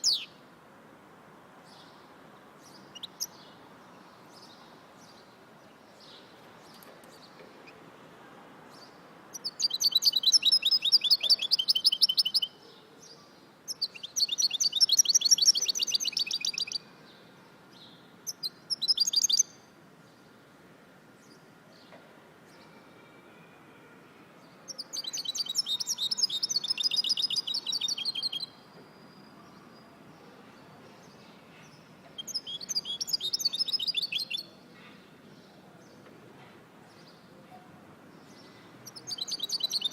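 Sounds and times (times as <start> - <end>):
songbird trilling: 0.0 - 0.3, 18.3 - 19.5, 24.7 - 28.6, 32.2 - 34.5, 38.8 - 39.9.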